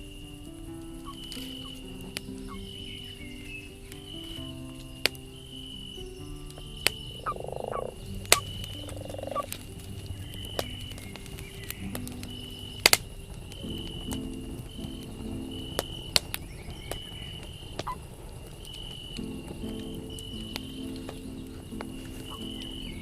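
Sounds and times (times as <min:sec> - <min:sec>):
campfire crackling and popping: 0:00.0 - 0:23.0
short croaking calls: 0:07.2 - 0:09.6.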